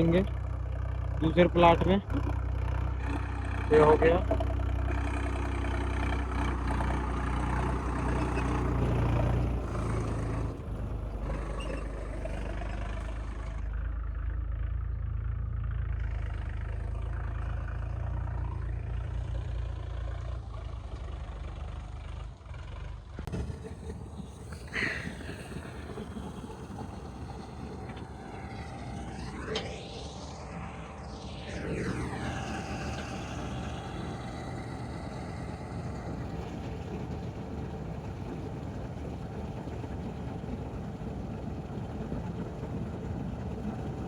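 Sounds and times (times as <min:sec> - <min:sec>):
harvester engine humming: 0:00.0 - 0:21.6, 0:23.2 - 0:44.0
short sharp squeak: 0:11.3 - 0:12.5.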